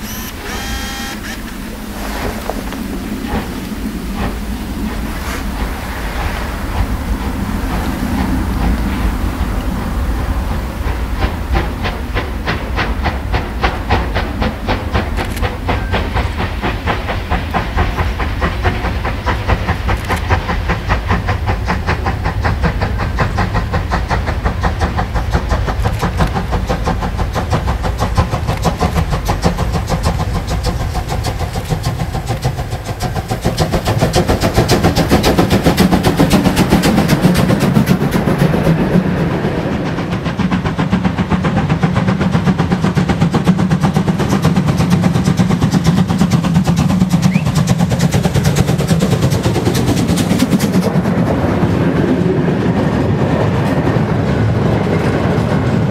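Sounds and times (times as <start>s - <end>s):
steam hiss: 0.0s - 55.9s
steam locomotive exhaust beats: 0.0s - 55.9s
train rumble: 0.0s - 55.9s.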